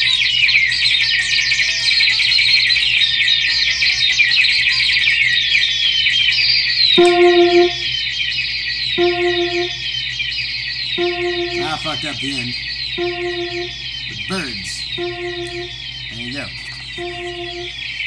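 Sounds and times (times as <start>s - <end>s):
electric guitar chirping squeaks: 11.0s - 18.0s.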